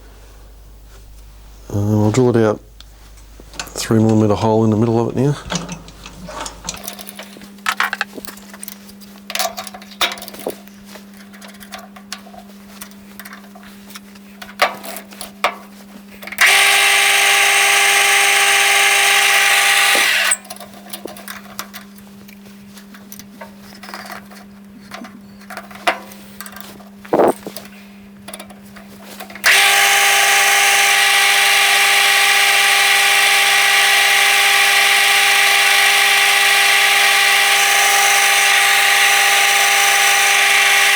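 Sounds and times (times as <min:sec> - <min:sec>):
loud machine whirring: 0:00.0 - 0:06.9, 0:16.4 - 0:20.4, 0:29.4 - 0:40.9
low steady machine hum: 0:00.0 - 0:06.9.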